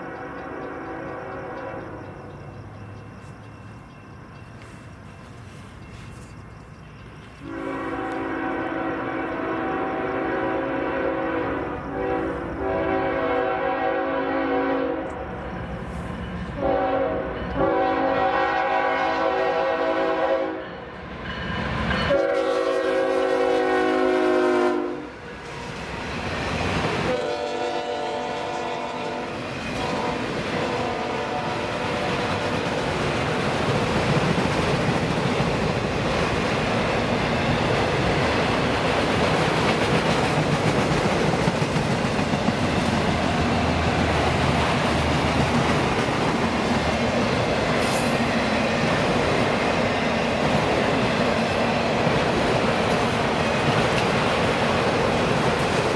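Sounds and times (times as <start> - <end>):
locomotive air horn blasts: 0.0 - 2.0, 7.4 - 15.2, 16.6 - 20.6, 22.1 - 25.2, 27.1 - 32.7
train rumble and wheel noise: 0.0 - 55.9.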